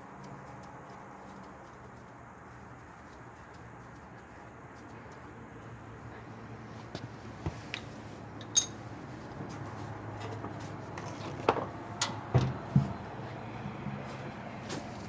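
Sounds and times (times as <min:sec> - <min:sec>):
hand tools clinking on metal: 0:07.8 - 0:08.9.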